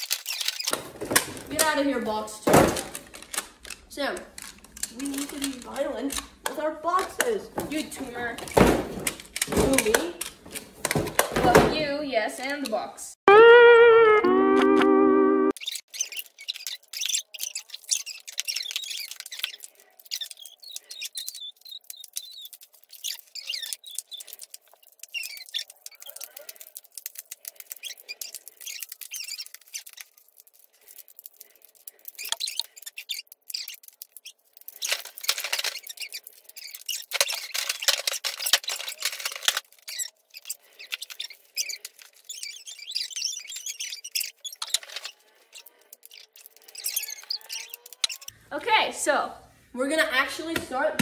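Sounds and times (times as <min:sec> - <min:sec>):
plastic tiles clicking and clattering: 0:00.0 - 0:02.0, 0:02.8 - 0:11.3, 0:15.6 - 0:48.4
high squeaky chirps: 0:13.3 - 0:48.4.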